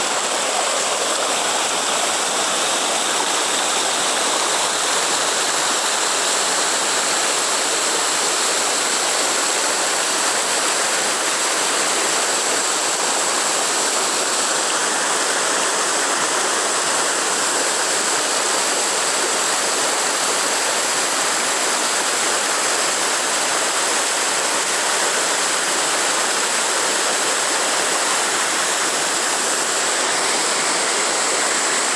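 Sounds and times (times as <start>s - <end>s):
waterfall roaring: 12.5s - 31.9s.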